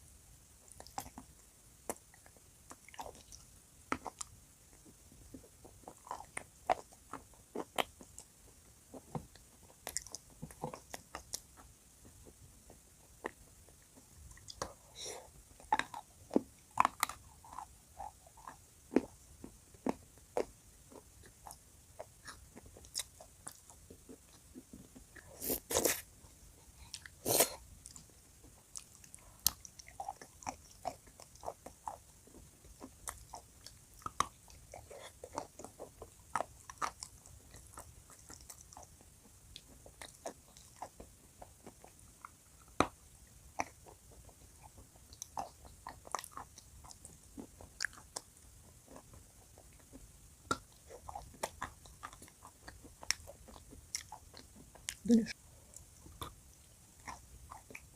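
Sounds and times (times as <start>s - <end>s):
chalk being chewed: 19.7s - 26.1s.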